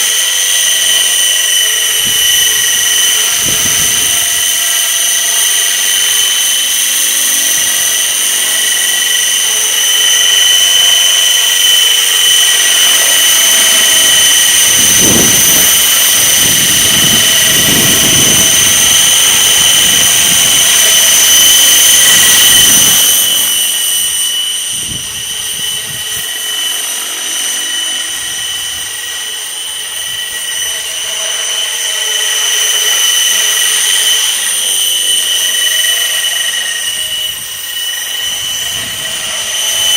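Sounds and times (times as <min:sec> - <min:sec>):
rc helicopter whine: 0:00.0 - 0:39.9
wind rumble on microphone: 0:01.7 - 0:05.8, 0:12.8 - 0:23.2, 0:24.7 - 0:26.3, 0:38.5 - 0:39.5.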